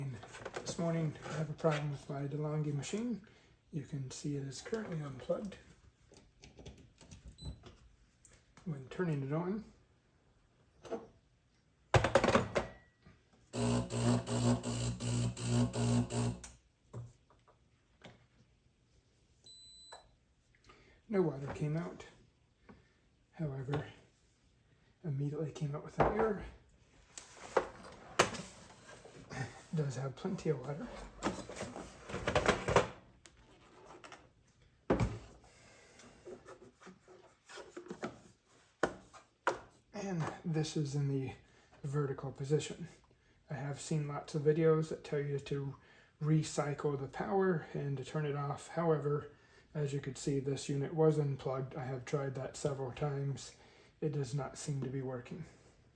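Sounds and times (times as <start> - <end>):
handling noises rubbing and clicks: 27.1 - 34.6.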